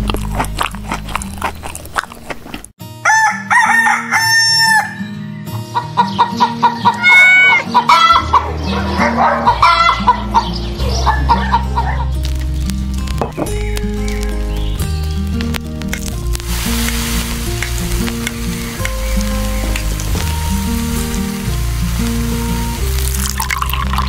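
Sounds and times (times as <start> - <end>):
background music: 2.8 - 24.0
chickens crowing: 3.0 - 12.2
chickens clucking: 4.7 - 12.3.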